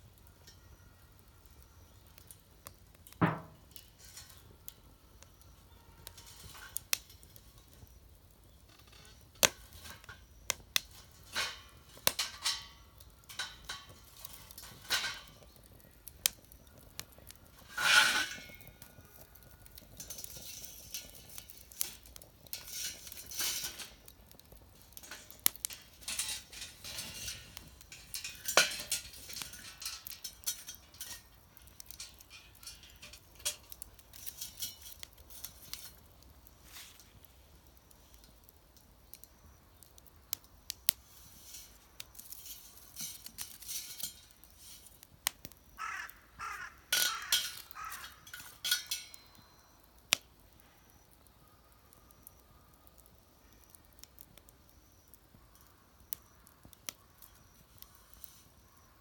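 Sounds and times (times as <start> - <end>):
light metallic clatter: 2.1 - 39.3, 39.9 - 45.6, 46.9 - 50.2
scraping rustle: 3.4 - 5.2, 6.0 - 38.4, 40.9 - 45.6, 57.2 - 58.6.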